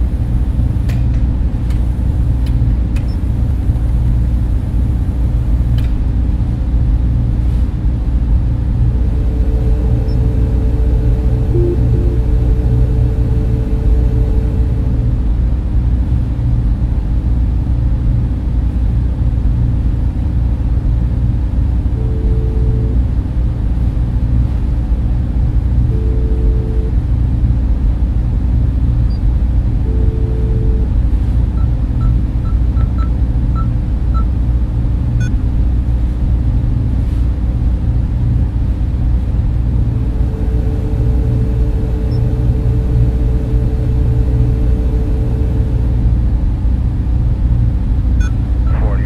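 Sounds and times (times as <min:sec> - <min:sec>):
cooling fans humming: 0:00.0 - 0:49.0
faint short beeps: 0:11.5 - 0:12.2.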